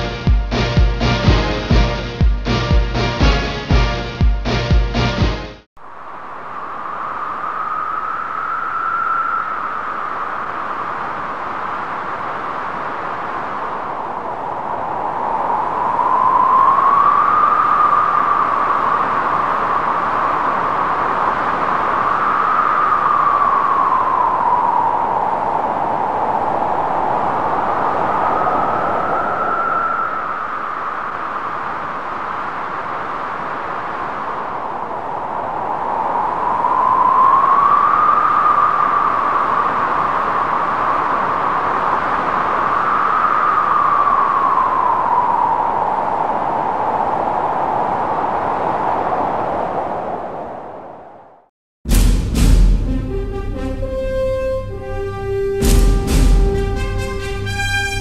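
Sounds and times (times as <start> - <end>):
howling mountain wind: 5.8 - 51.5.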